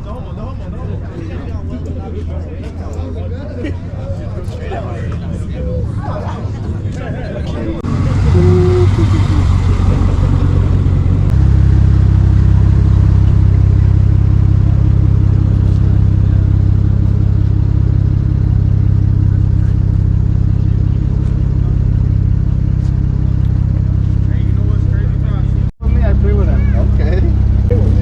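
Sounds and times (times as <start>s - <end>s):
car engine idling: 7.8s - 28.0s.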